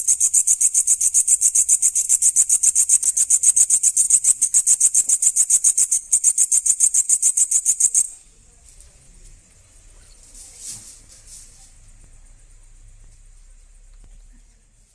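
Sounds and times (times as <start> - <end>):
grasshopper chirping: 0.0 - 8.2.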